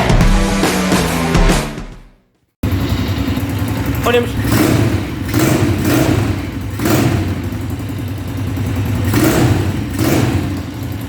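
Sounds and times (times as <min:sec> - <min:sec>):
engine running: 0:02.6 - 0:11.0
engine throttle blips: 0:02.6 - 0:11.0.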